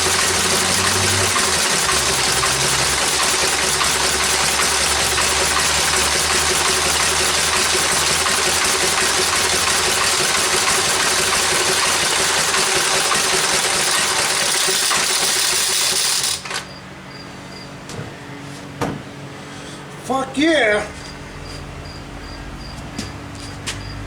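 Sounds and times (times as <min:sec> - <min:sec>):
engine running with rapid clatter: 0:00.0 - 0:20.0, 0:20.9 - 0:24.0
quiet low engine hum: 0:16.7 - 0:24.0.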